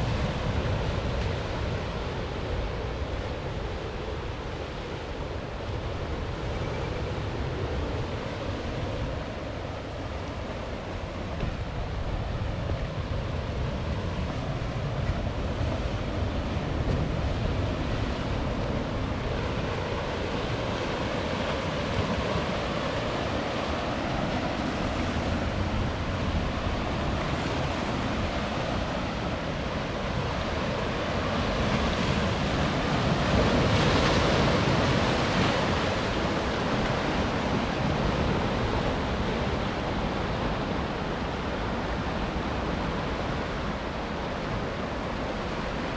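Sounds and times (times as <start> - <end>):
ocean surf breaking on rocks: 0.0 - 45.9.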